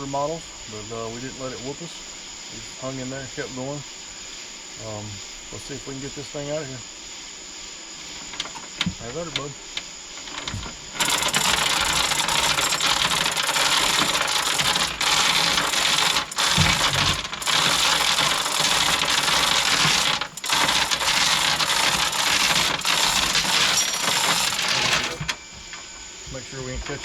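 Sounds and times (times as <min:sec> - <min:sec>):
engine hoist metallic rattling: 0:08.2 - 0:09.5, 0:10.2 - 0:27.0.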